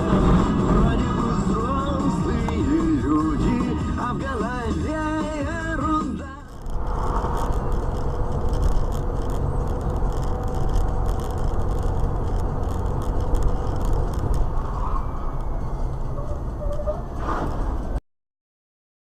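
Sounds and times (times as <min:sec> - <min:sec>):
car road and engine rumble: 0:00.0 - 0:18.0
faint ticking or rattling: 0:06.5 - 0:14.5.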